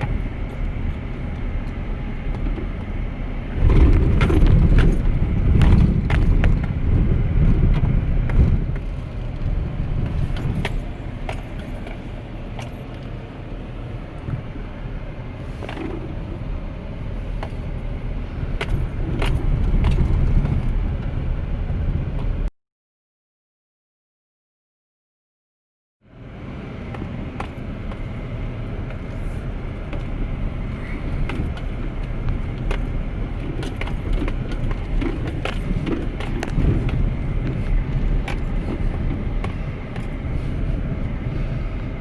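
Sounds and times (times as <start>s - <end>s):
truck engine low rumble: 0.0s - 22.5s, 26.1s - 42.0s
sharp knocks and rattles: 2.3s - 13.1s, 28.9s - 40.4s.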